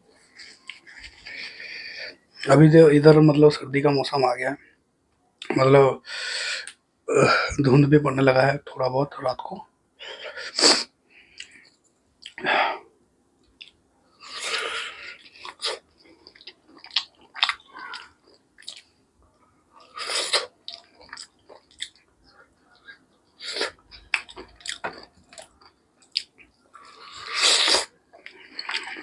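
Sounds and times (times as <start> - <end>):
man chewing with mouth smacks: 0.2 - 1.5, 11.3 - 12.4, 13.4 - 29.0.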